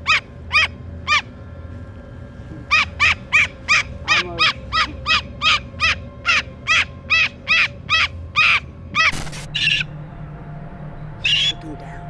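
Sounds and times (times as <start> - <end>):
bird giving harsh calls: 0.0 - 1.3, 2.6 - 9.9, 11.2 - 11.6
bird squawk: 0.0 - 1.3, 2.6 - 9.9, 11.2 - 11.6.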